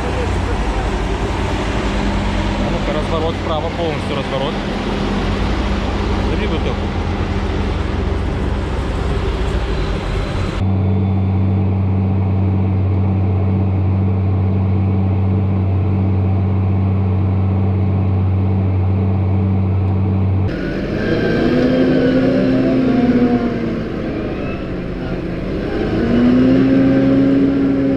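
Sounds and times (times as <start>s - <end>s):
tractor engine running: 0.0s - 27.8s.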